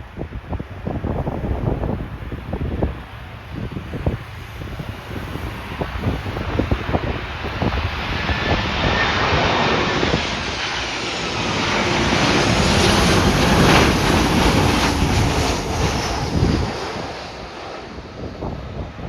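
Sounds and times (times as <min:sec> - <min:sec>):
airliner engines passing: 0:00.0 - 0:19.0
wind buffeting microphone: 0:00.0 - 0:19.0.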